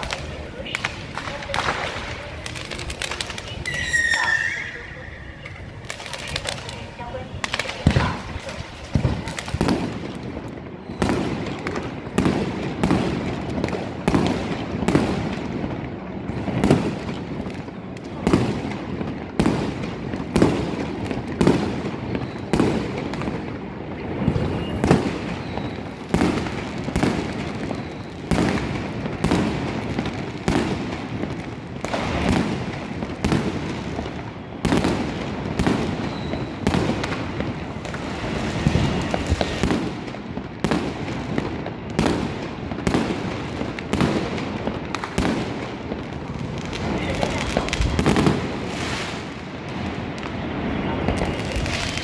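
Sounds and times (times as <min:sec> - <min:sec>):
firework crackle: 0:00.0 - 0:52.0.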